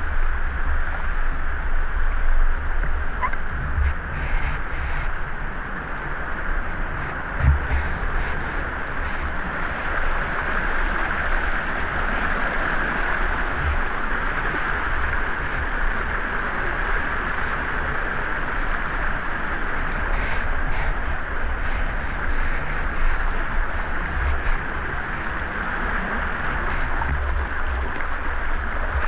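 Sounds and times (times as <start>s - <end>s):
waterfall and river rushing: 6.0s - 29.0s.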